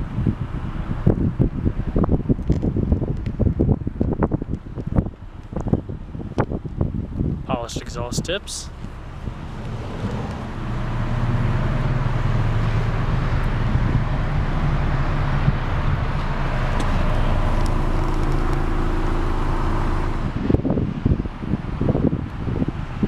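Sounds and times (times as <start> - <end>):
car engine idling: 3.8 - 21.6.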